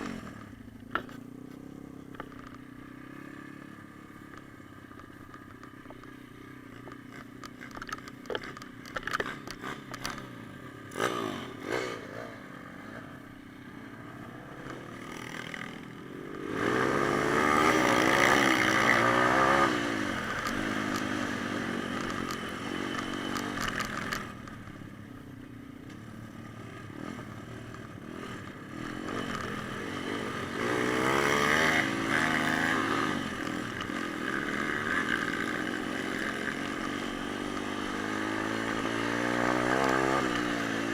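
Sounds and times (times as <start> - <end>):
motorbike engine revving: 6.6 - 24.6, 26.8 - 40.9.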